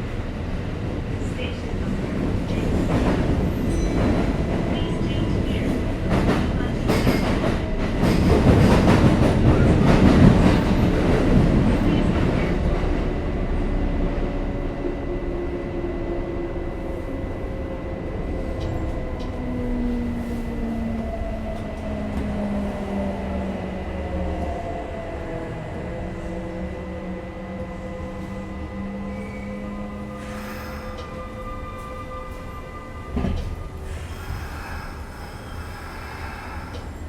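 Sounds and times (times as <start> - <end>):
train wheel and track rumble: 0.0 - 37.0
rail-joint clicks: 30.2 - 31.2, 36.5 - 37.0.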